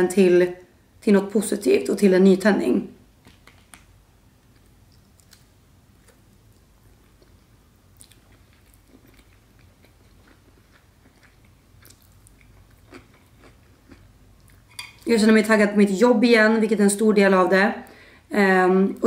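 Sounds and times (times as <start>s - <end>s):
close chewing: 4.5s - 14.6s.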